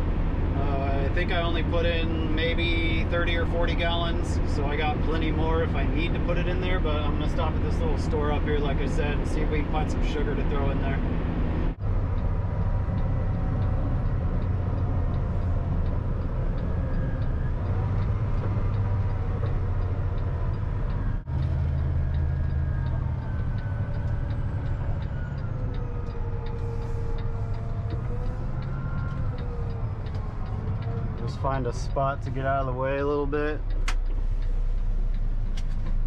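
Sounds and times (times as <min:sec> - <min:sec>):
steady light ticking: 0:11.8 - 0:35.6.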